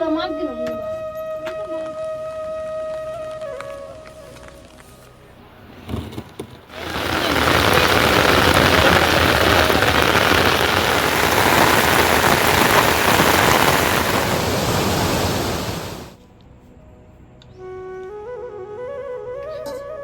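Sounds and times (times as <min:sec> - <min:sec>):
rain pouring: 0:06.7 - 0:16.2.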